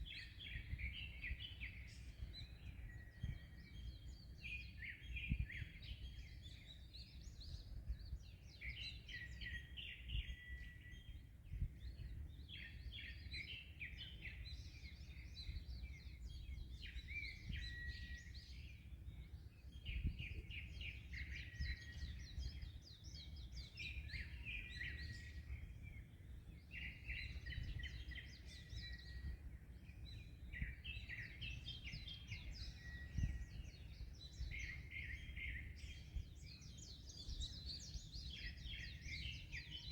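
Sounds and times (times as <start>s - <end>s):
wind thumps on microphone: 0.0s - 3.5s, 5.2s - 5.9s, 7.4s - 8.3s, 11.4s - 12.3s, 19.8s - 20.8s, 27.1s - 29.5s, 30.1s - 38.1s
songbird chirping: 0.0s - 39.9s.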